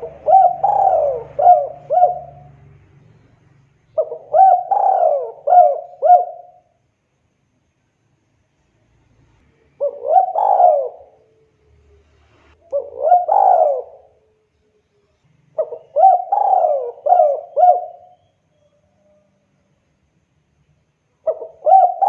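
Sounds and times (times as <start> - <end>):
dove cooing: 0.0 - 2.7, 4.0 - 6.8, 9.8 - 11.3, 12.6 - 14.3, 15.5 - 18.3, 21.2 - 22.0.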